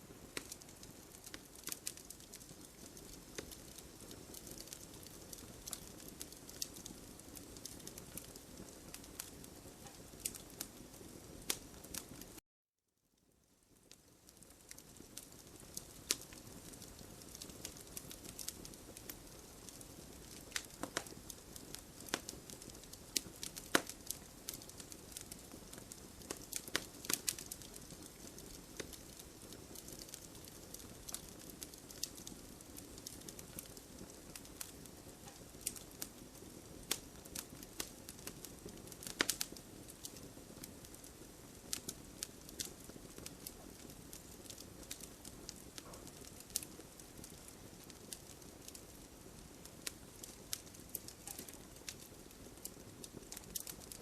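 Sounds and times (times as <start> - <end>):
burning logs crackling and popping: 0.0 - 12.4, 13.2 - 54.0
soft rush of flame: 0.0 - 12.4, 13.7 - 54.0.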